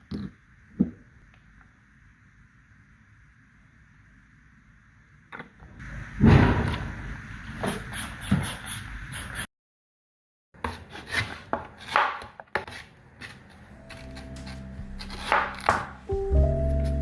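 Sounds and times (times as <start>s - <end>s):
knocks and scrapes on hard surface: 10.6s - 16.0s
background music with held notes: 13.8s - 17.0s.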